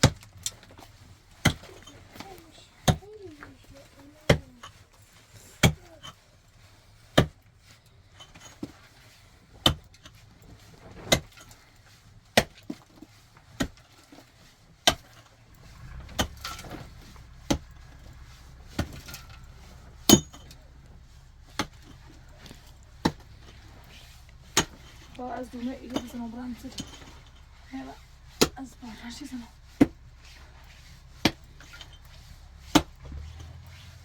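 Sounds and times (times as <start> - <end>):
low steady rumble: 15.2 - 34.0.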